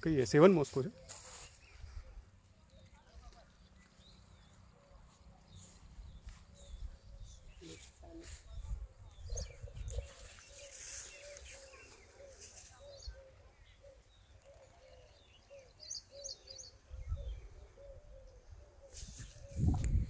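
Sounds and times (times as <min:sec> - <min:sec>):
low rumble on microphone: 0:19.4 - 0:20.0.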